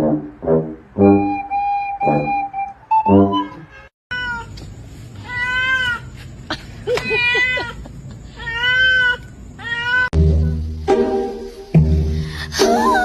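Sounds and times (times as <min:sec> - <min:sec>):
cat meowing: 0:03.6 - 0:04.6, 0:05.2 - 0:06.1, 0:07.0 - 0:07.8, 0:08.4 - 0:10.1.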